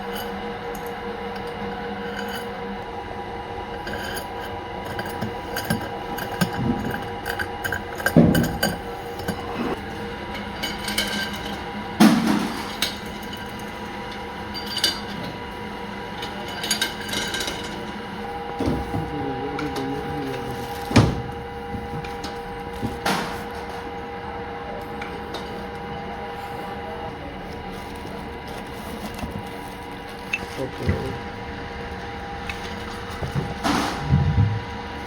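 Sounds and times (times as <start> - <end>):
machine hum: 0.0 - 35.0
metal knocks and clanks: 20.6 - 23.9, 32.5 - 34.8.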